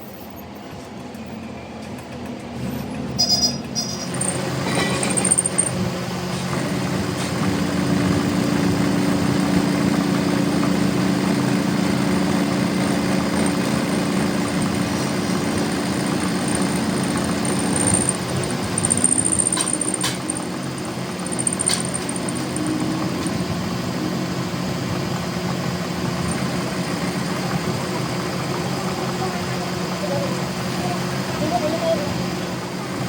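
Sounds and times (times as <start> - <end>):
machine humming: 10.7 - 24.5.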